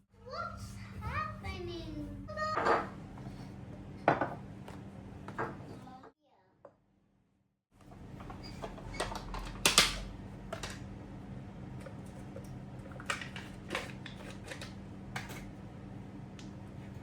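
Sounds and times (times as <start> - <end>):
kitchen utensils clicking and tapping: 8.2 - 10.8, 11.8 - 15.5.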